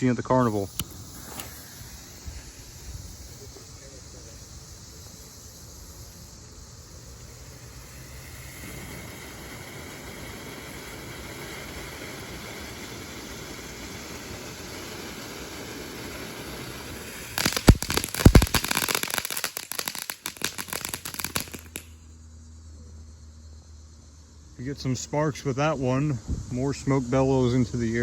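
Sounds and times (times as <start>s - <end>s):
firework crackling: 0.0s - 22.0s
firework hissing: 0.0s - 22.2s
loud firework bangs: 0.4s - 21.9s.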